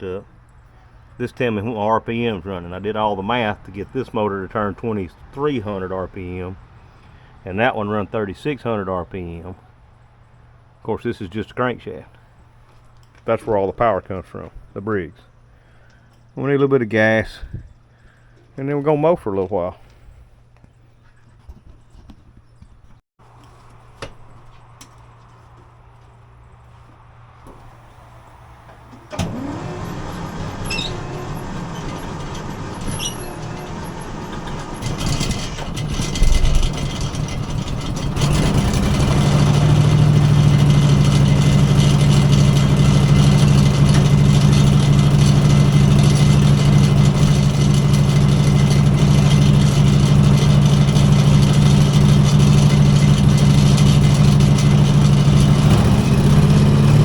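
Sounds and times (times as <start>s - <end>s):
engine starting and running: 27.4s - 57.0s.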